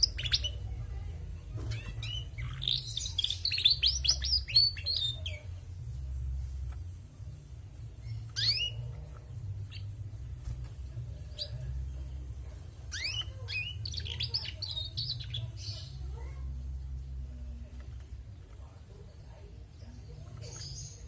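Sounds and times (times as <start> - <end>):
steady low hum: 0.0 - 14.5
canary chirps: 0.0 - 21.0.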